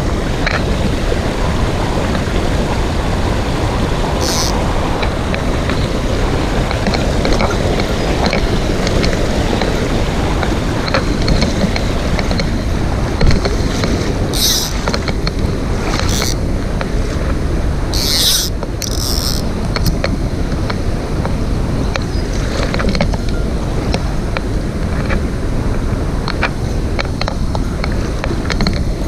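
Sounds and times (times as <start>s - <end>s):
mountain stream rushing: 0.0s - 29.0s.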